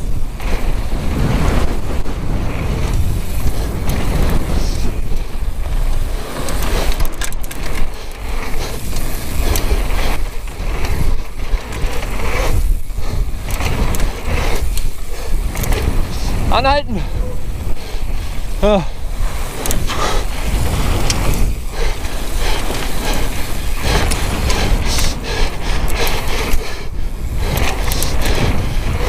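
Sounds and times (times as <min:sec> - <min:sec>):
bike tyres over ground: 0:00.0 - 0:29.0
wind buffeting microphone: 0:00.0 - 0:29.0.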